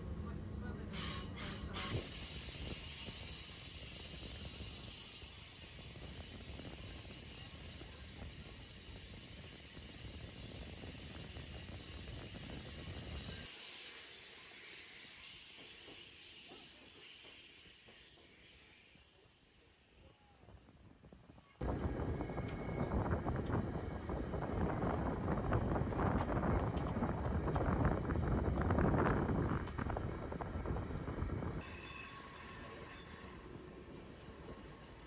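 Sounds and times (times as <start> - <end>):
train hiss: 0.0 - 21.4, 31.6 - 35.0
train low rumble: 0.0 - 35.0.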